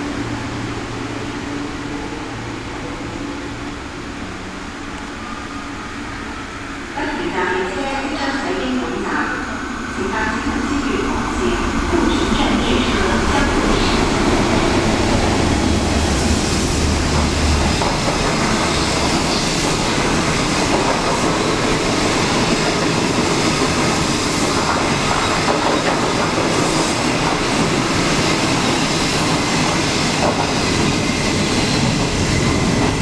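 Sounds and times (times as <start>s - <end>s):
diesel locomotive engine drone: 0.0s - 33.0s
train wheels clattering on rails: 14.4s - 33.0s.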